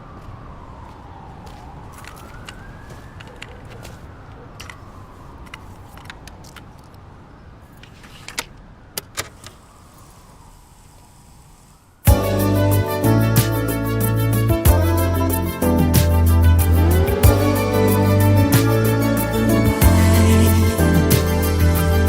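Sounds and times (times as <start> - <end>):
siren wailing: 0.0 - 6.2, 12.1 - 22.0
traffic rumble: 0.0 - 22.0.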